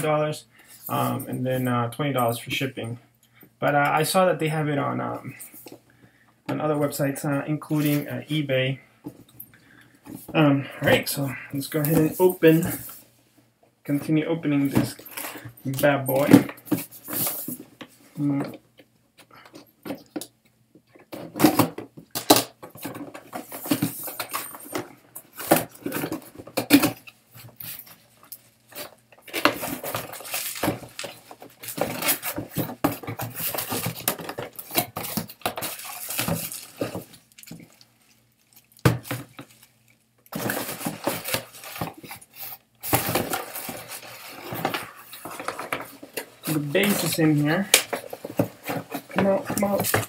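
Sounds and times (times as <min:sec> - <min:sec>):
packaging rustling and crinkling: 0:21.2 - 0:50.0.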